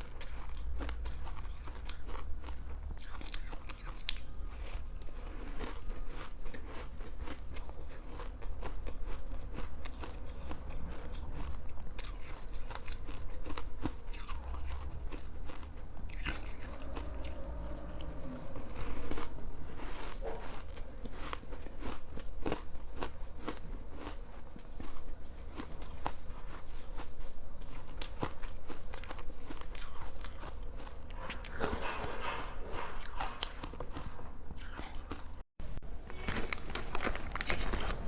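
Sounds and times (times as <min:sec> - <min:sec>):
ice being chewed: 0:00.0 - 0:35.4.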